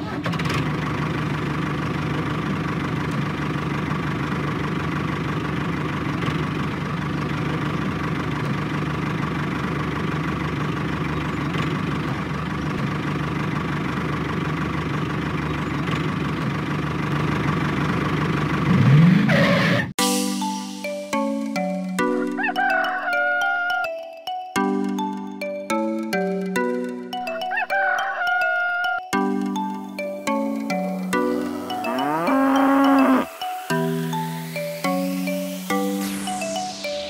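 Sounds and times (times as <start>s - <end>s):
tractor engine idling: 0.0s - 18.7s.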